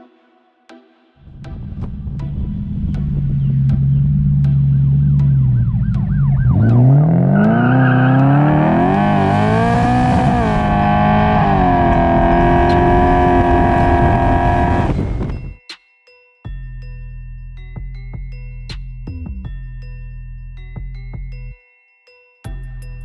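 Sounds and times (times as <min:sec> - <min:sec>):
car engine idling and revving: 0:01.3 - 0:15.6.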